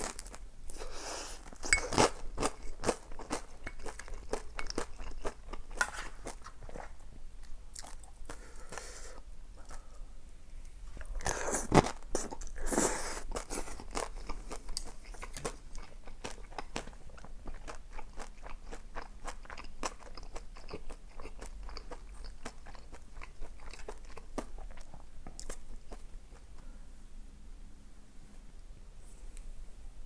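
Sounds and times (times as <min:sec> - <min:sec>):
chewing crunchy food: 0:01.4 - 0:08.9, 0:11.1 - 0:26.6.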